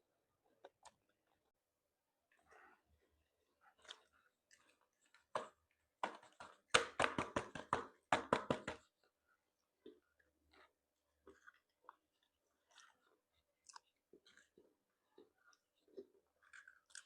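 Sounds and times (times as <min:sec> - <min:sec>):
person chewing seafood: 0:02.3 - 0:05.8, 0:09.6 - 0:17.0.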